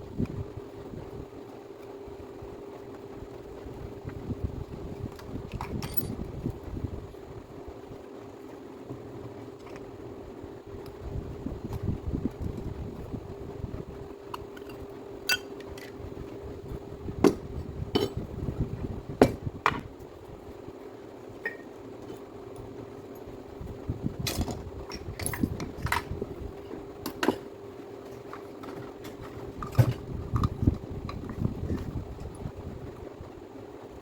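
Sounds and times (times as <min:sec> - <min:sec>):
faint steady hum: 0:00.0 - 0:34.0
hand tools and metal parts clinking: 0:05.1 - 0:06.3, 0:14.3 - 0:16.0, 0:18.0 - 0:18.2, 0:24.2 - 0:26.1.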